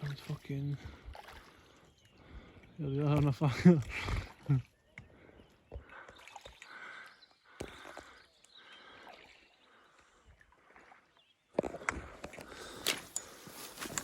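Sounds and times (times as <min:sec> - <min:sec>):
rustling: 0:12.6 - 0:14.0.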